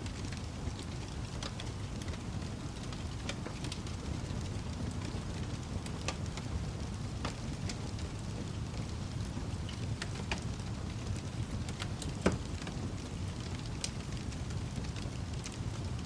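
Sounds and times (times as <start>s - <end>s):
steady rain: 0.0s - 16.0s
wood fire crackling: 0.0s - 16.0s.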